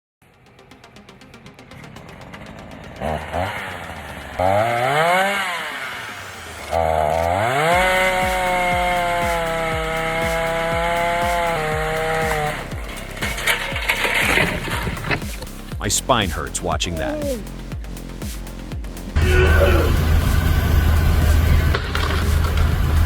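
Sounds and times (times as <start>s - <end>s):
chainsaw engine revving: 1.7s - 15.7s, 19.2s - 23.0s.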